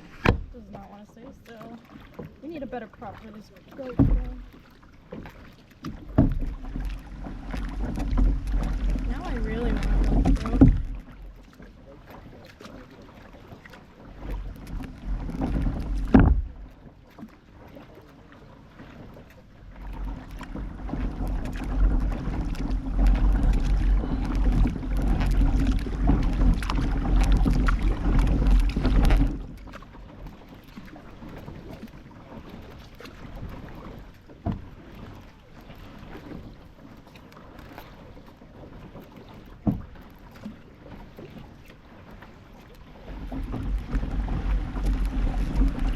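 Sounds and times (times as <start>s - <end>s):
knock on kayak: 0.0s - 0.7s, 3.8s - 4.6s, 5.8s - 11.3s, 14.2s - 16.7s, 19.8s - 29.8s, 33.5s - 34.9s, 39.6s - 40.0s
water rumbling: 0.0s - 45.9s
wind on microphone: 20.6s - 29.6s.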